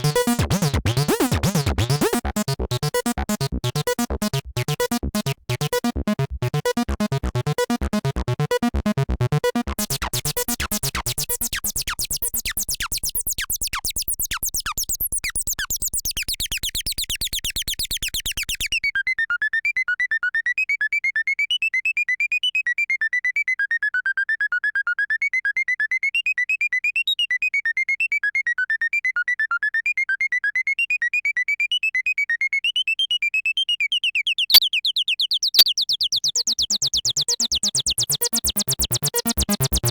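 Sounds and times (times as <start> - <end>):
acid bass synthesizer sequence: 0.0 - 11.6.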